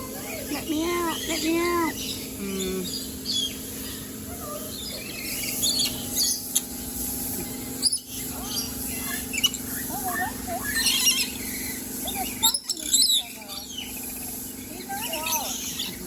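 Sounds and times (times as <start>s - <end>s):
birds chirping and squawking: 0.0s - 16.0s.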